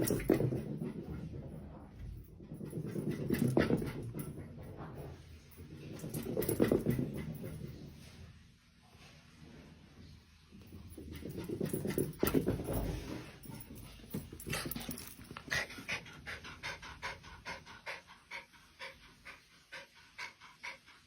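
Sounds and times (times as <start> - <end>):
dog panting: 11.2 - 21.0.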